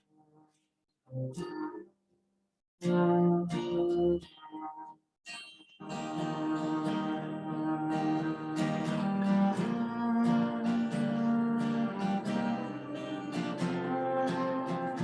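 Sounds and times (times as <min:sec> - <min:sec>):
guitar strummed and picked: 0:02.8 - 0:04.9, 0:05.8 - 0:15.0.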